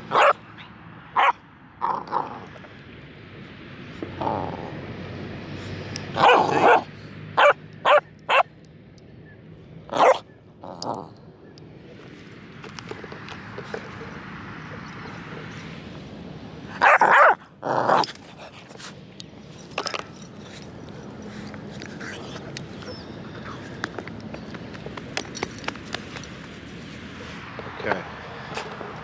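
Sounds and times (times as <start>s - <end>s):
dog barking: 0.1s - 1.4s, 6.1s - 8.5s, 9.9s - 10.2s, 16.7s - 18.1s.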